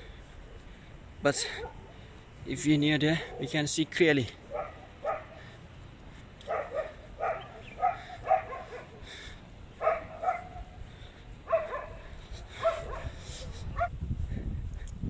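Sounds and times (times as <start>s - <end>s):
dogs barking: 1.4s - 2.0s, 4.4s - 5.6s, 6.4s - 10.8s, 11.4s - 13.9s.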